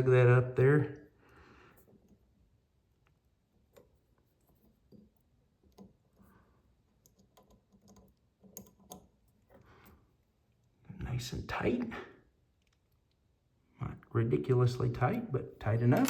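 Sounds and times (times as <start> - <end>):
tool clicking on metal faucet parts: 15.7 - 16.0.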